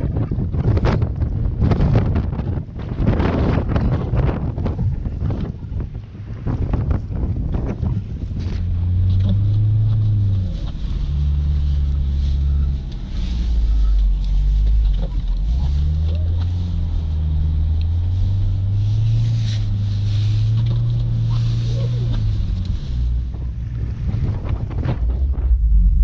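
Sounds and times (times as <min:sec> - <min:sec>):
car engine revving: 0:08.3 - 0:26.0.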